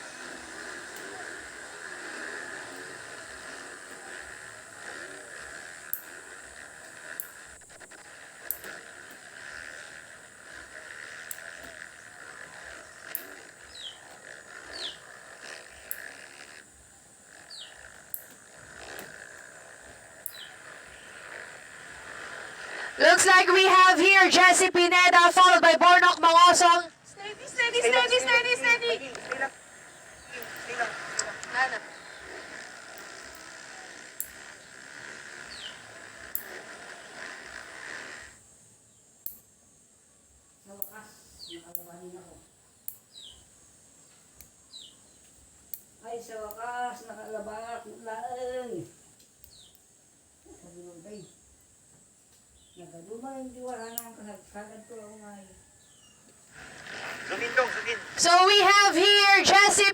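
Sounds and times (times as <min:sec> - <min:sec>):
sharp clicks: 0:00.0 - 0:24.4, 0:27.6 - 0:38.4, 0:39.2 - 0:39.5, 0:53.6 - 0:54.2, 0:56.2 - 0:59.9
faint dirt bike engine drone: 0:00.0 - 0:59.9
light clicks: 0:00.2 - 0:16.7, 0:40.7 - 0:42.0, 0:53.6 - 0:54.3.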